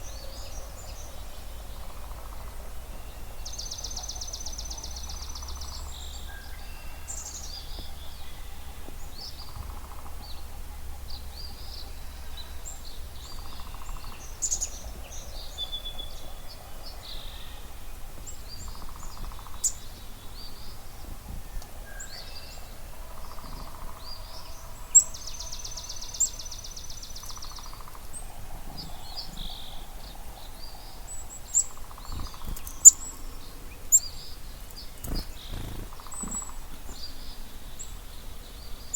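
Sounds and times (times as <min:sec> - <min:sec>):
birds singing and chirping: 0:00.0 - 0:38.9
fast buzzy bird trill: 0:35.0 - 0:36.9.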